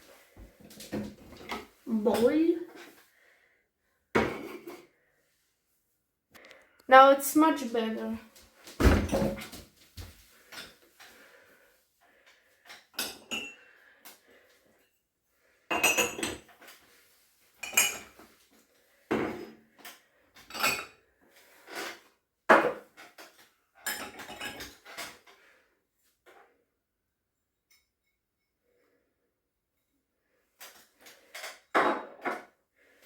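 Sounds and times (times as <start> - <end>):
dishes and cutlery clattering: 4.2 - 4.8, 12.7 - 13.8, 15.7 - 16.8, 17.6 - 18.3, 20.4 - 21.0, 21.7 - 25.3, 30.7 - 32.5.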